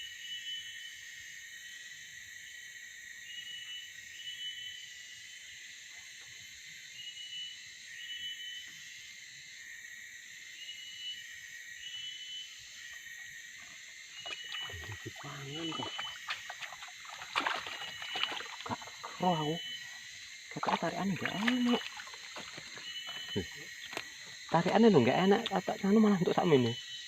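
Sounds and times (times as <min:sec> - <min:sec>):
insect buzzing hiss: 0:00.0 - 0:27.0
high-pitched insect chirps: 0:06.4 - 0:27.0.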